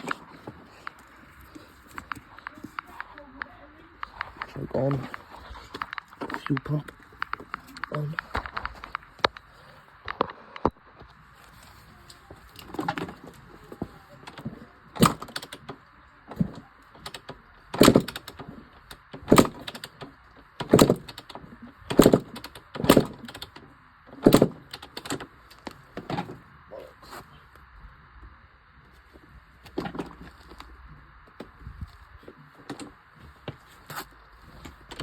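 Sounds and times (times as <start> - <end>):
dirt bike kickstarter thumps: 12.6 - 23.6, 24.2 - 26.4.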